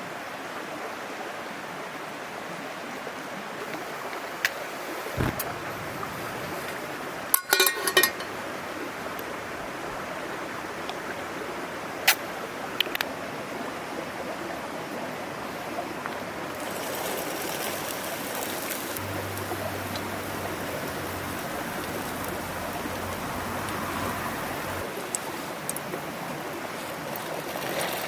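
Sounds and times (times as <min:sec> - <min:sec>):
stream babbling: 0:01.4 - 0:28.0
sharp clicks: 0:05.2 - 0:06.9
fine crackle: 0:05.2 - 0:07.1.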